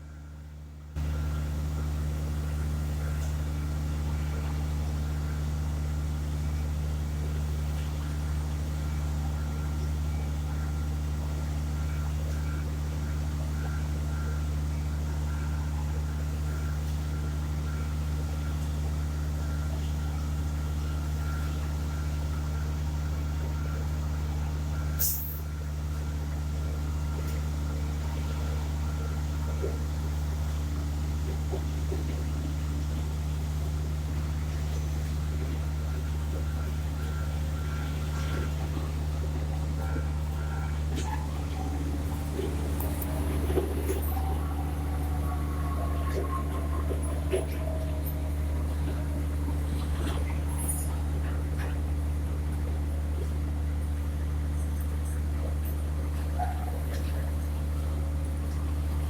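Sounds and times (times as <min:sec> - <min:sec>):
diesel truck engine idling: 0:33.4 - 0:50.6.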